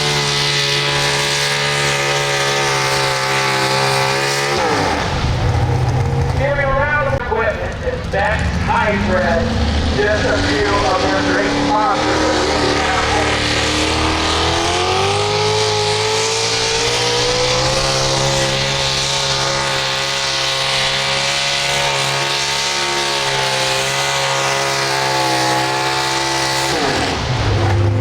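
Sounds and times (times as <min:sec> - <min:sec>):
engine at full throttle: 0:00.0 - 0:28.0.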